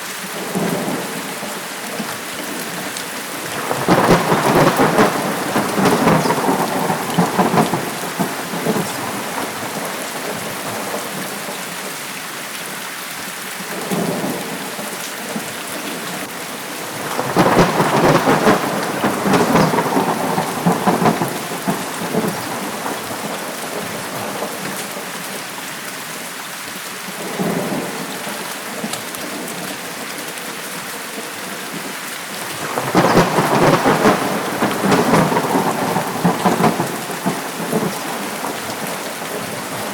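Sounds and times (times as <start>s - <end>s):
heavy rain: 0.0s - 39.9s
thunder rolling: 3.3s - 11.5s, 16.6s - 24.6s, 32.4s - 39.9s.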